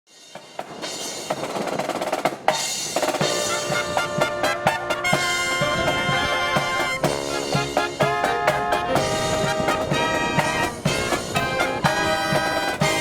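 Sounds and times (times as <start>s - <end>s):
drum strikes: 0.3s - 13.0s
snare drum roll: 0.3s - 13.0s
brass chords: 3.2s - 13.0s.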